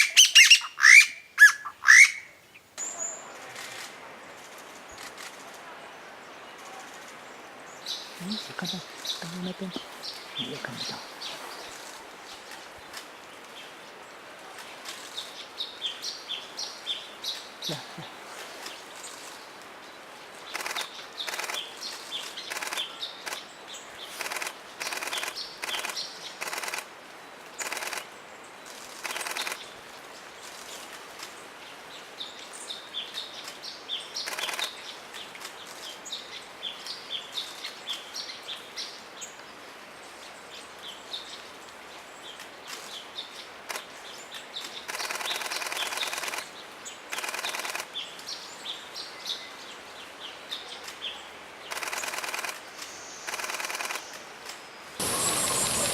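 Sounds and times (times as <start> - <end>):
small birds chirping: 7.7 - 13.1, 42.2 - 55.9.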